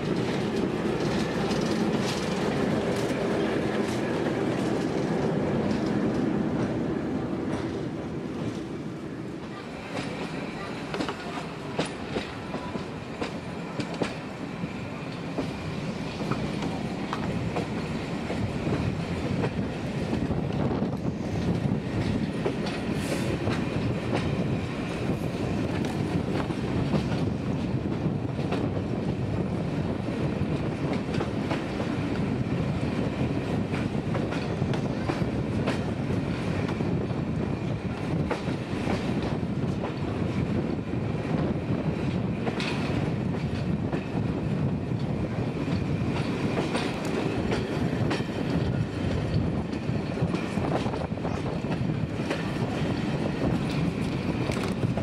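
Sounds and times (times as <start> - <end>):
rail joint clicks: 0.0 - 8.8, 9.4 - 55.0
wheels rumbling on rail: 0.0 - 55.0.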